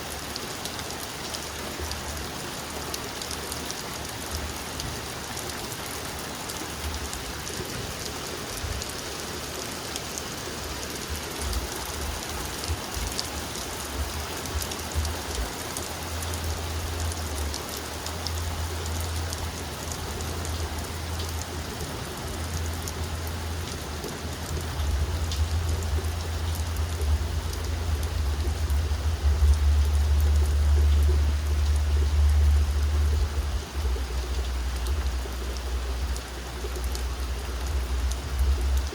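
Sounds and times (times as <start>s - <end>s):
heavy rain pattering: 0.0s - 38.9s
low rumble: 16.0s - 38.9s.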